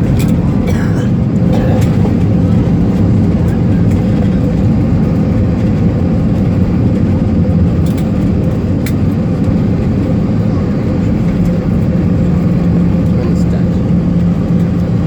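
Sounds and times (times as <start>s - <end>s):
airliner engines and wheels rumbling: 0.0s - 15.0s
low hum: 0.0s - 15.0s.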